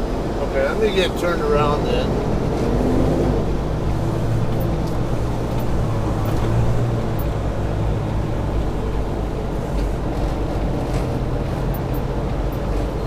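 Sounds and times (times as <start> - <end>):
truck diesel engine drone: 0.0 - 13.0.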